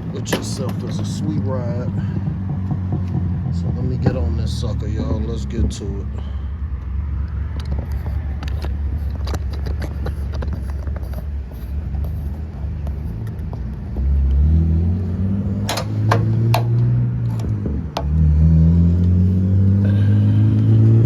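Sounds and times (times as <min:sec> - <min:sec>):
motorcycle engine idling: 0:15.6 - 0:17.4
clicks and rattles: 0:15.6 - 0:18.1.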